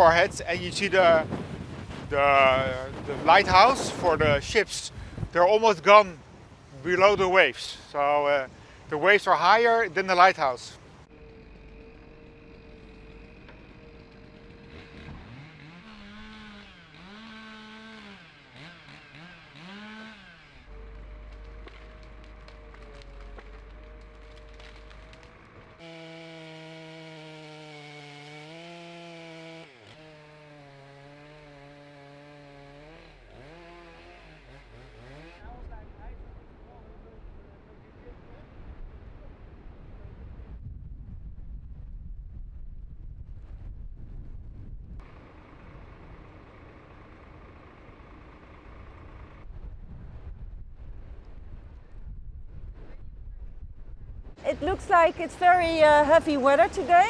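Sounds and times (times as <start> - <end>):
wind buffeting microphone: 0.0 - 5.4, 35.5 - 45.0, 49.4 - 57.0
chainsaw engine revving: 11.0 - 35.7.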